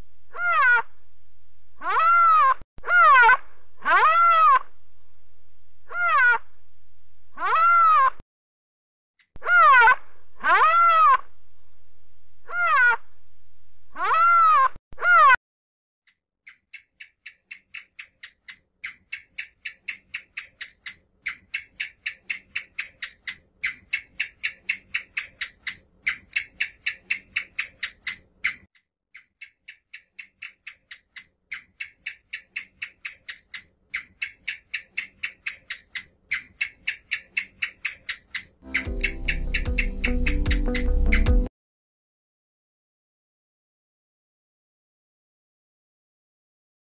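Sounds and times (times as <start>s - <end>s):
pitched animal call: 0.3s - 0.9s, 1.8s - 4.7s, 5.9s - 6.5s, 7.4s - 8.2s, 9.4s - 11.3s, 12.4s - 13.1s, 14.0s - 15.4s, 31.5s - 41.4s
mouse squeaking: 16.4s - 41.5s.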